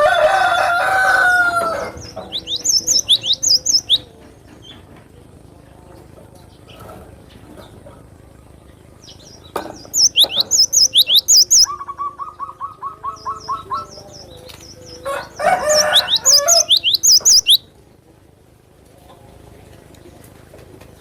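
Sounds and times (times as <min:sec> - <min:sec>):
bird singing sharp chirps: 0:02.0 - 0:04.1, 0:09.2 - 0:15.0, 0:15.6 - 0:17.6.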